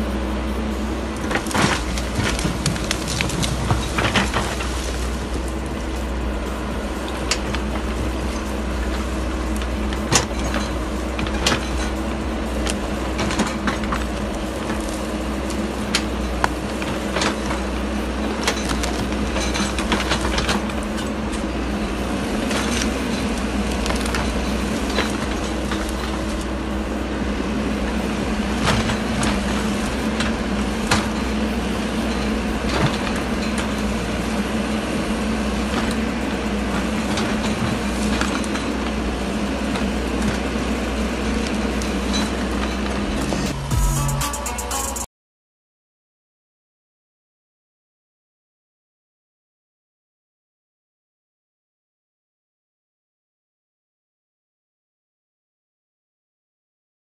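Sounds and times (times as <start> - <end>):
excavator diesel engine running: 0.0 - 45.1
digging knocks and clanks: 1.2 - 5.6, 7.0 - 26.6, 27.7 - 43.6.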